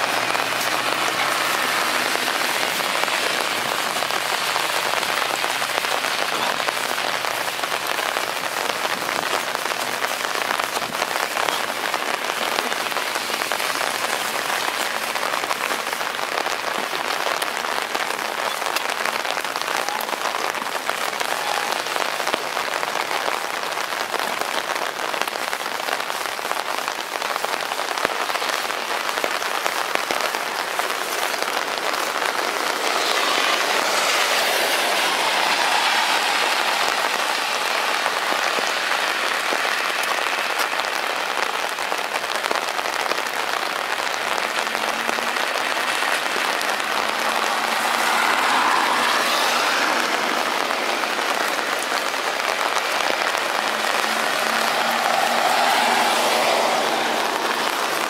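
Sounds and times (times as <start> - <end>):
vehicle engine hum: 0.0 - 18.2, 30.2 - 41.0, 42.1 - 58.0
heavy rain on road: 0.0 - 58.0.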